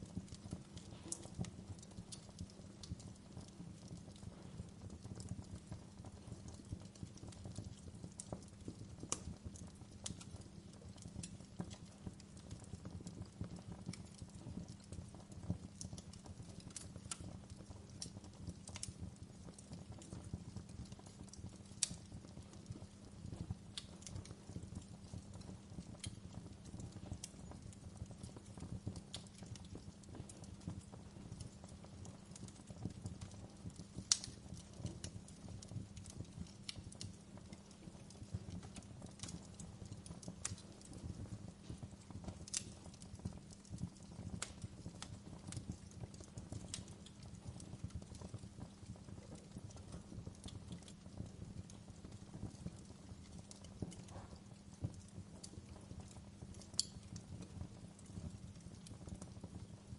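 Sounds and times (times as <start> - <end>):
firewood crackling: 0.0 - 59.9
low flame rumble: 0.0 - 59.9
sharp fire pops: 0.2 - 5.0, 23.0 - 43.6, 56.7 - 57.5.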